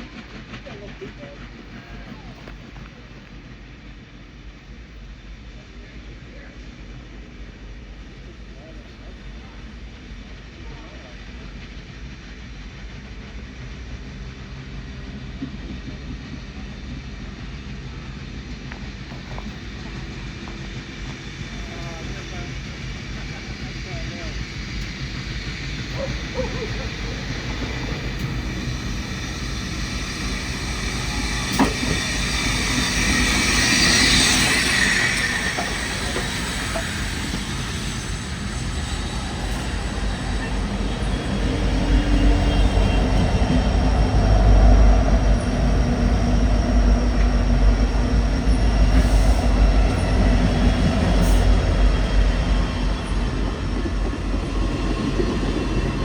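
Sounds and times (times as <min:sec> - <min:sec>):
train locomotive rumbling: 0:00.0 - 0:56.0
rushing hiss: 0:18.5 - 0:42.9.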